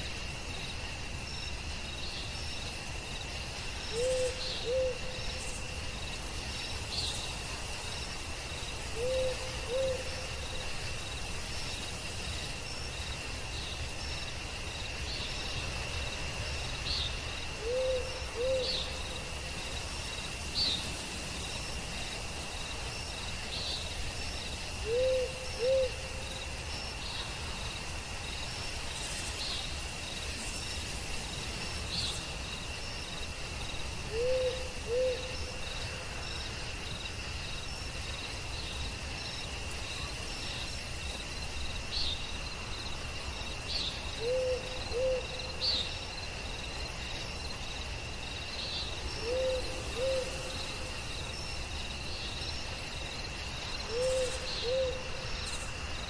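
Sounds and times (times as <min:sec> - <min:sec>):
crickets and insects droning: 0:00.0 - 0:56.0
owl hooting: 0:03.9 - 0:05.0, 0:09.0 - 0:10.1, 0:17.6 - 0:18.7, 0:24.8 - 0:26.0, 0:34.1 - 0:35.3, 0:44.2 - 0:45.2, 0:49.2 - 0:50.5, 0:53.9 - 0:55.0.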